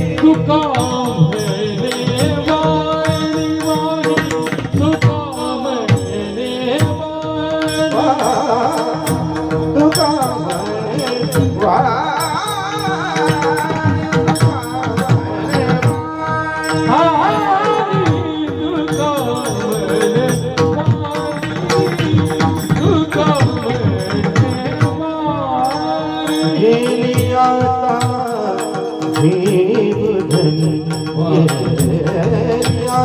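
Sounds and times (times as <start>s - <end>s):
hand drum beat: 0.0s - 33.0s
person singing melismatic notes: 0.0s - 33.0s
small hand cymbals: 18.8s - 33.0s.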